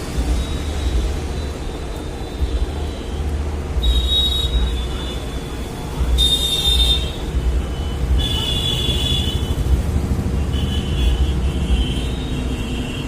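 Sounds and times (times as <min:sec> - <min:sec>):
road traffic: 0:00.0 - 0:13.0
vehicle horns honking: 0:06.2 - 0:09.7.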